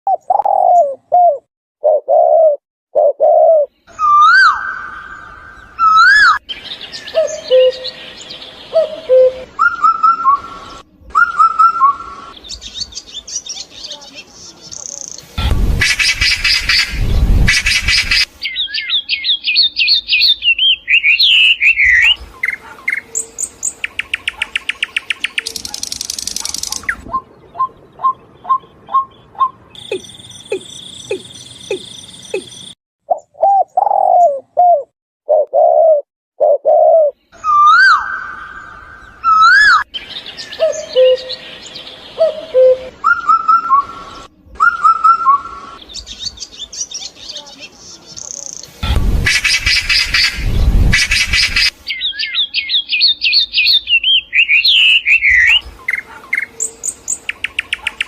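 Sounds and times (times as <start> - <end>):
piping bird notes: 0.1 - 13.1, 17.5 - 46.1
descending bird chirps: 3.2 - 13.6, 14.7 - 34.4, 35.6 - 47.1, 48.2 - 58.0
fast bird trill: 24.0 - 32.8.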